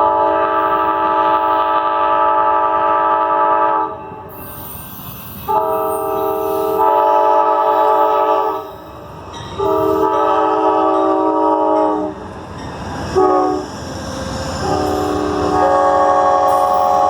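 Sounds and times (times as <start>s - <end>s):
locomotive air horn blasts: 0.0s - 4.0s, 5.5s - 8.7s, 9.6s - 12.2s, 13.2s - 13.6s, 14.6s - 17.0s
train rumbling: 0.0s - 17.0s.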